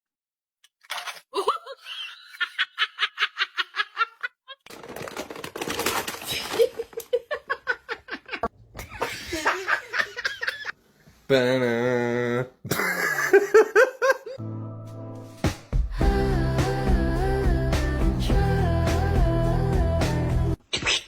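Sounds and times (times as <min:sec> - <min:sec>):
rhythmic laughter: 0:01.5 - 0:04.6.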